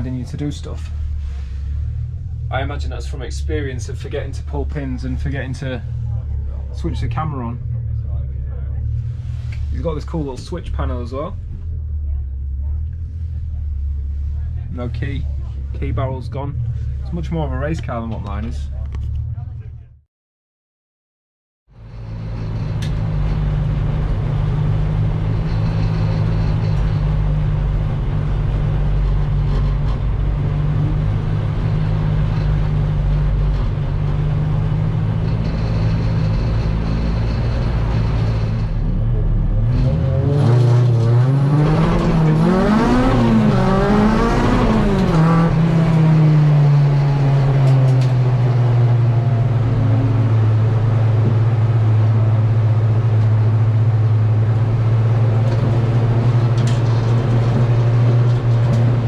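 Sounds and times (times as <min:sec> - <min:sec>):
car engine revving: 0:21.8 - 0:59.0.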